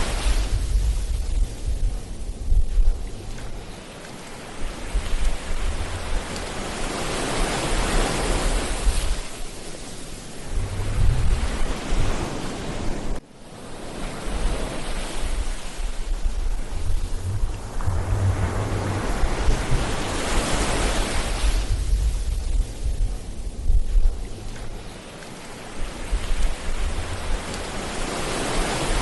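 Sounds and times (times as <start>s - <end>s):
ocean waves breaking on a beach: 0.0s - 29.0s
low rumble: 10.4s - 12.2s, 16.1s - 24.9s.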